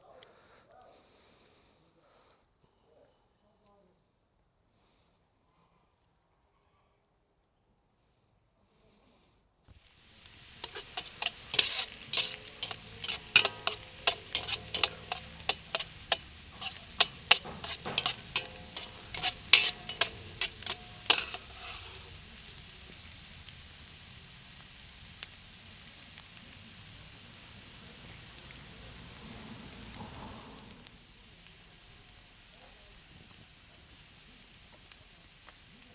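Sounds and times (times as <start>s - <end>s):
meat sizzling in a pan: 9.8s - 35.9s
metal utensil scraping a pan: 10.2s - 22.2s.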